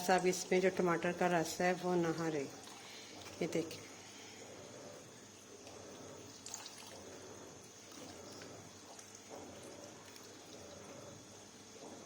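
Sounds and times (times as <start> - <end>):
juice dripping and trickling: 1.5 - 11.8.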